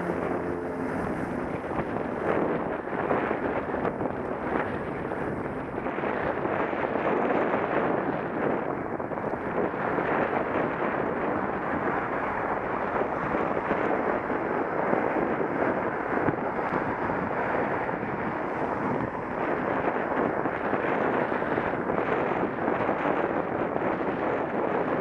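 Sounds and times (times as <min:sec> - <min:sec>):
wind rushing on microphone: 0:00.0 - 0:25.0.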